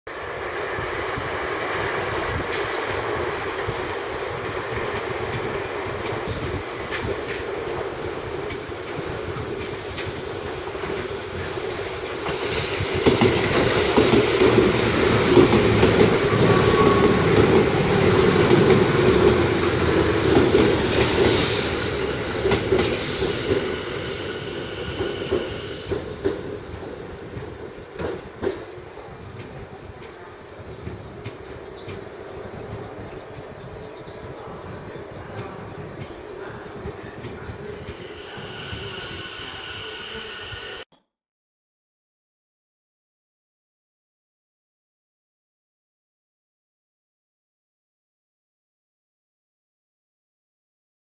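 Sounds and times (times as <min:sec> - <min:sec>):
train wheels on rails: 0:00.2 - 0:40.8.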